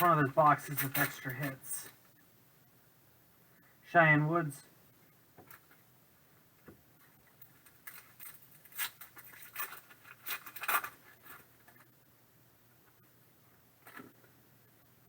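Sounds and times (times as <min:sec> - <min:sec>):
cards and pack rustling: 0:07.4 - 0:11.9.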